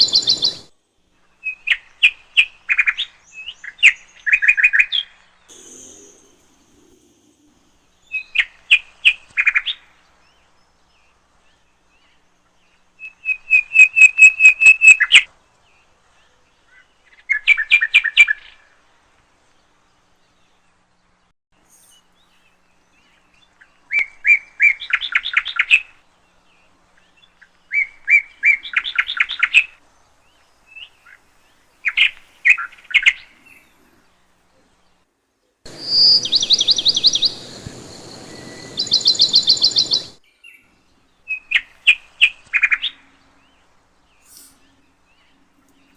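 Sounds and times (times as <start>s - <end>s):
small bird chirping and trilling: 0.0s - 0.7s, 35.7s - 43.1s
background hiss: 0.0s - 45.9s.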